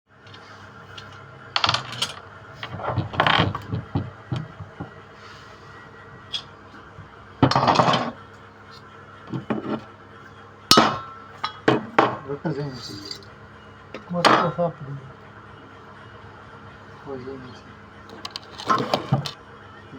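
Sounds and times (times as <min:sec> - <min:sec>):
faint steady hum: 0:00.1 - 0:19.9
metal tools clattering and scraping: 0:00.3 - 0:03.9, 0:07.4 - 0:08.2, 0:10.7 - 0:13.3.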